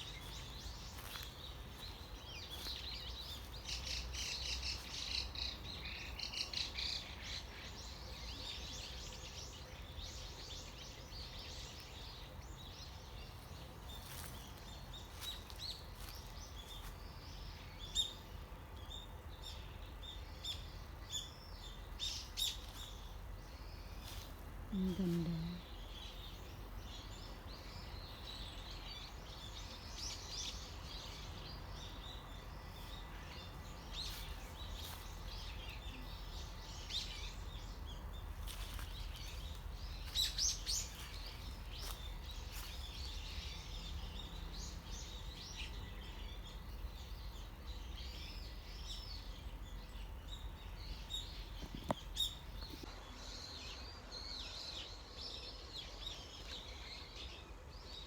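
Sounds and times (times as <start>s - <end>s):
birds chirping and calling: 20.4s - 52.9s.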